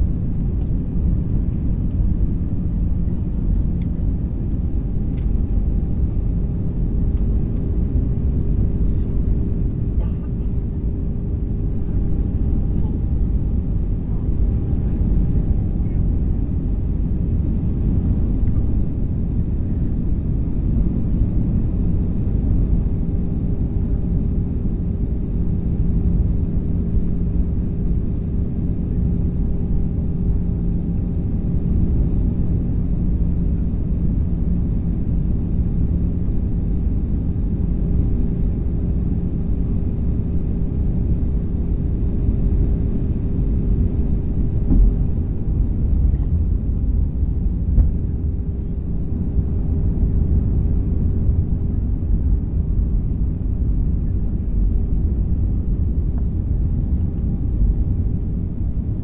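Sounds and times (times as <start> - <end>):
airplane engine and airflow rumble: 0.0 - 59.0.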